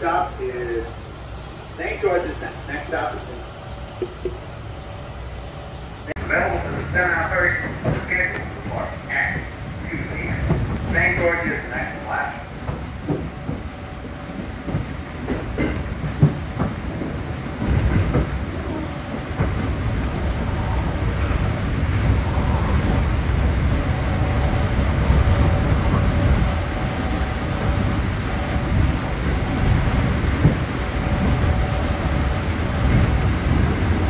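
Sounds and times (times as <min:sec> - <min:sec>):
faint steady whine: 0:00.0 - 0:34.0
train rumbling on track: 0:00.0 - 0:34.0
wheel clacks over rail joints: 0:12.6 - 0:18.4.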